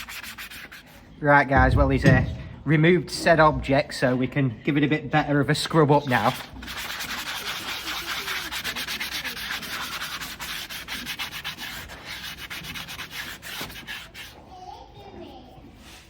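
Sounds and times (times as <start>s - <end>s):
horse hoof being scrubbed: 0.0s - 1.1s, 6.0s - 14.5s.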